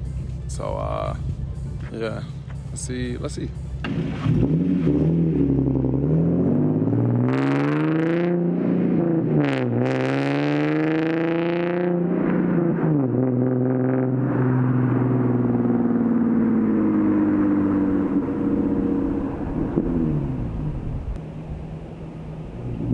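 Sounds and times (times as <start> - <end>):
car engine accelerating: 0.0 - 22.9.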